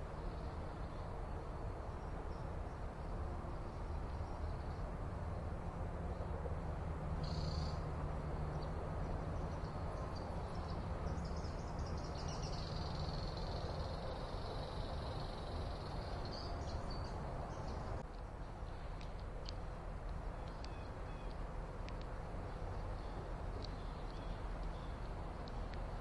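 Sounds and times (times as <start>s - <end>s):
low outdoor rumble: 0.0s - 26.0s
bird chirps and trill: 7.2s - 7.8s.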